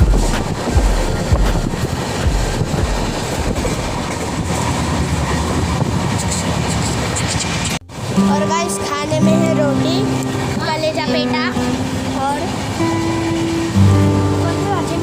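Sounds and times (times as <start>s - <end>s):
wheels clacking over rail joints: 0.0s - 7.8s
train rumble: 0.0s - 15.0s.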